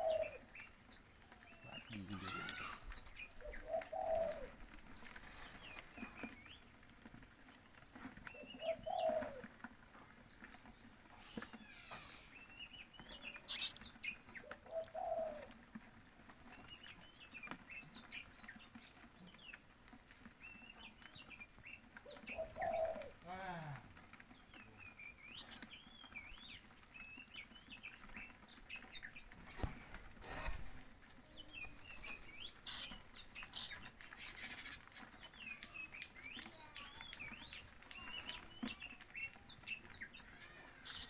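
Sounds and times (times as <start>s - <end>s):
birds chirping: 0.0s - 15.6s, 16.4s - 41.0s
lower bird call: 13.5s - 13.8s, 25.3s - 25.7s, 32.6s - 33.8s.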